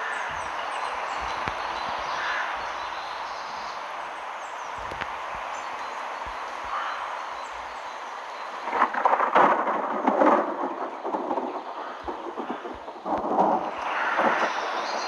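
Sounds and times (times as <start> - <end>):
steady hiss: 0.0 - 15.0
thunder rumbling: 8.6 - 15.0.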